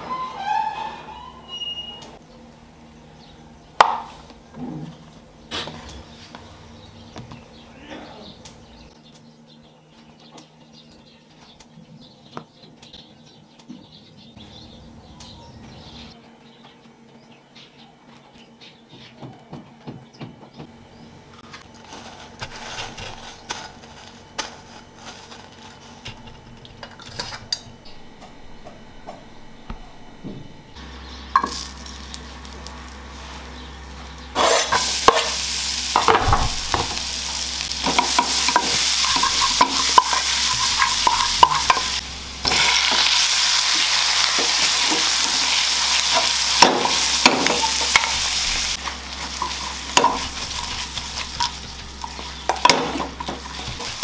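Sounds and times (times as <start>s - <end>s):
garlic sizzling in a pan: 30.8s - 54.0s
spatula scraping a pan: 34.4s - 35.4s, 37.8s - 43.1s, 44.2s - 54.0s.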